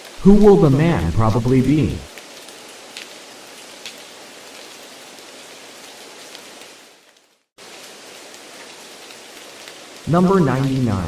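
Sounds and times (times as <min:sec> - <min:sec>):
rain-like hiss: 0:00.0 - 0:11.0.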